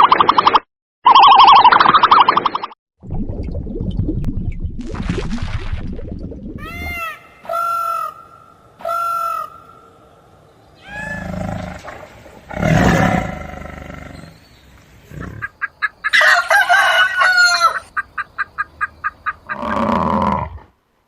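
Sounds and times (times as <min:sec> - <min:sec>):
loud fowl calls: 0:06.7 - 0:09.8, 0:15.4 - 0:19.7.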